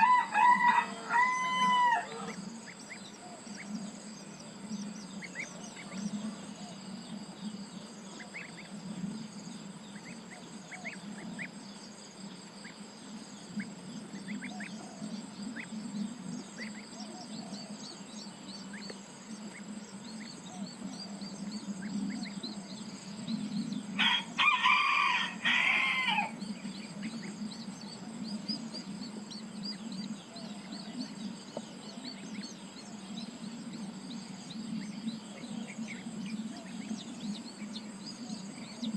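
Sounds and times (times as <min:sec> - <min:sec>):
rooster crowing: 0:00.0 - 0:02.4, 0:24.0 - 0:26.4
insect drone: 0:00.0 - 0:38.9
small bird chirps: 0:13.4 - 0:24.0.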